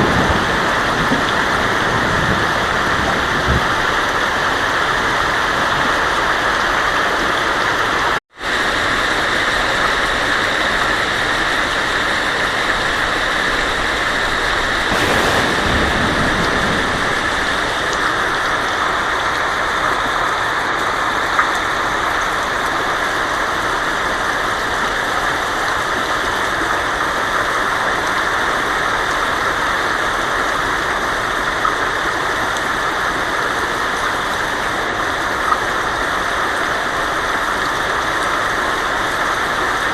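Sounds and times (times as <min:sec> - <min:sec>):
heavy rain on a tin roof: 0:00.0 - 0:39.9
faint low rumble: 0:14.9 - 0:18.6.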